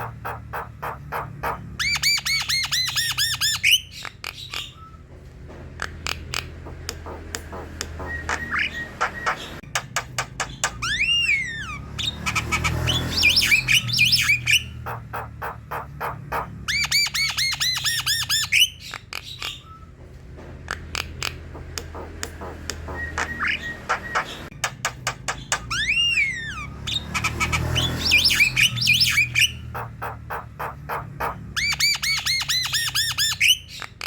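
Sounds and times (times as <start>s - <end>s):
bird singing: 0.0s - 5.2s, 5.8s - 20.0s, 20.7s - 34.0s.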